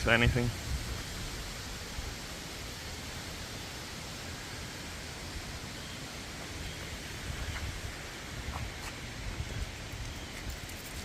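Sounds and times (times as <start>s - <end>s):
gusty wind on microphone: 0.0s - 2.4s, 6.9s - 11.0s.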